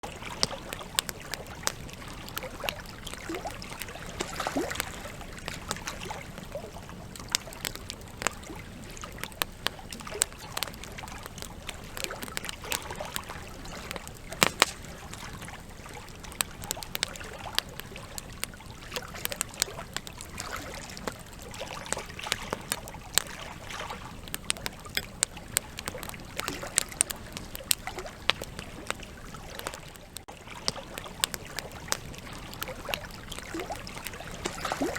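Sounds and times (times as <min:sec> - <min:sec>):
campfire crackling and popping: 0:00.0 - 0:34.9.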